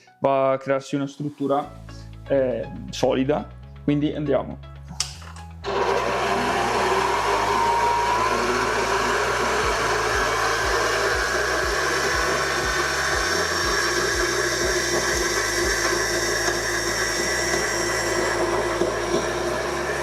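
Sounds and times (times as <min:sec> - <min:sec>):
stand mixer motor whirring: 0:05.6 - 0:20.0.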